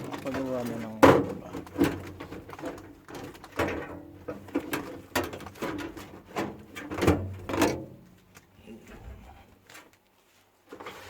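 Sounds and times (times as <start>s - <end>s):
clicks and knocks of microwave parts: 0.0s - 8.0s.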